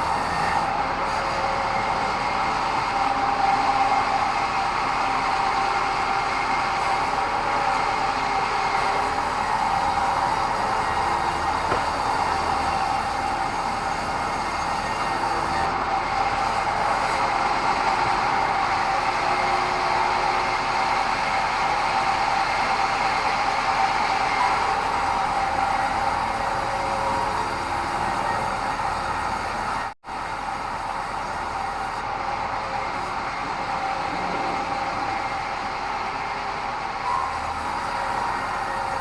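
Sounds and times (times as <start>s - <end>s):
machine noise: 0.0s - 39.0s
bandsaw whine cutting log: 5.0s - 32.1s.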